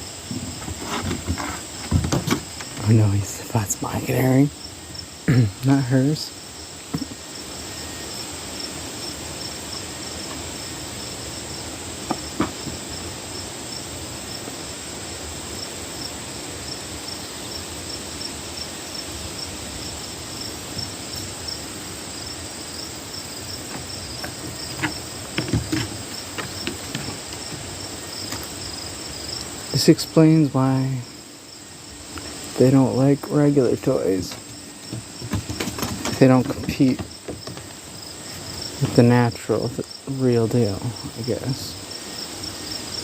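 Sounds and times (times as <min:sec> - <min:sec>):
crickets chirping: 0:00.0 - 0:43.0
soft knocks and taps: 0:12.1 - 0:12.8, 0:23.7 - 0:27.7, 0:34.3 - 0:37.8.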